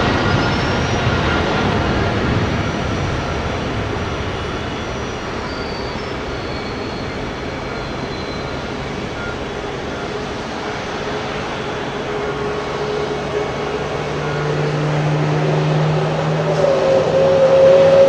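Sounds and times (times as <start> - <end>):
jet engine rumble with whine: 0.0 - 18.0.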